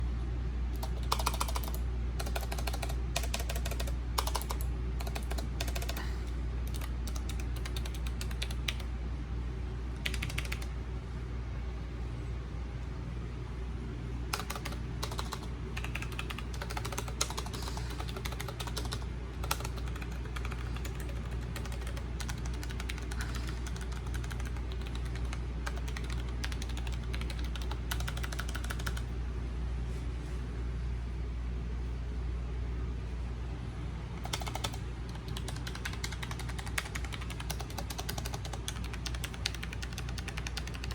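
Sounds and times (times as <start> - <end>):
air-conditioner hum: 0.0 - 40.9
typing on mechanical keyboard: 0.8 - 8.9, 10.0 - 10.7, 14.3 - 29.0, 34.2 - 40.9.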